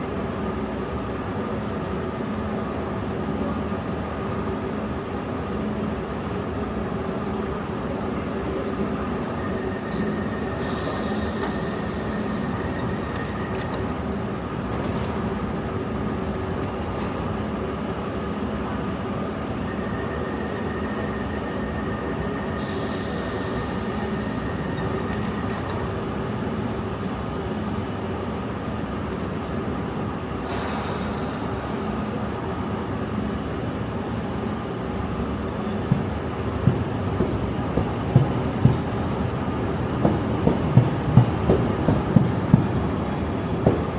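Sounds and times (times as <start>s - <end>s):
hum of train motors: 0.2s - 43.9s
brief hissing: 10.6s - 13.0s, 22.6s - 25.1s, 30.4s - 33.6s.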